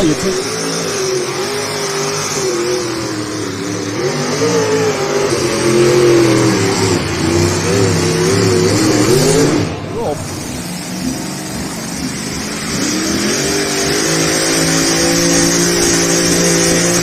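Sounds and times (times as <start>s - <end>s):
vehicle engine running under load: 0.0s - 17.0s.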